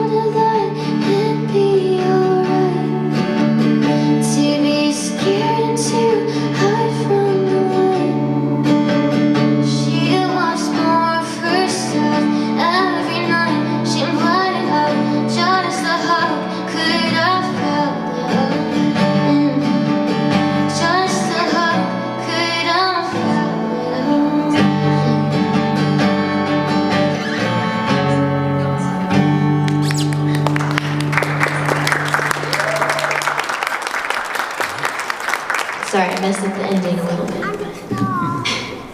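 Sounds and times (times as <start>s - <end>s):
woman singing: 0.0s - 26.6s
sustained guitar chords: 0.0s - 33.3s.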